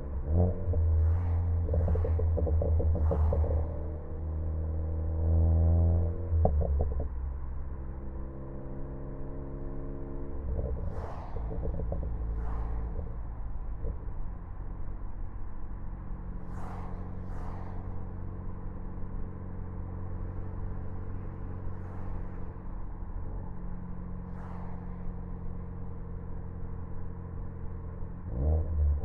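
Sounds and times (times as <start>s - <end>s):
car engine running steadily: 0.0s - 29.0s.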